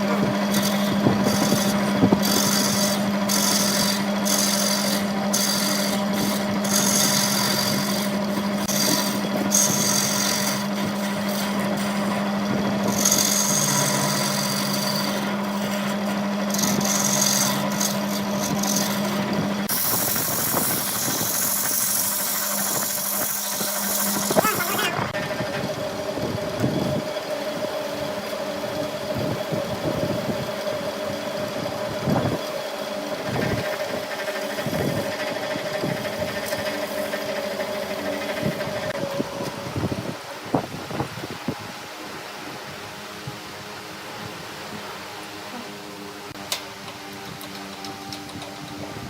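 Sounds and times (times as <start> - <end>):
tool scraping spinning wood: 0.0 - 41.6
wood lathe humming: 0.0 - 49.0.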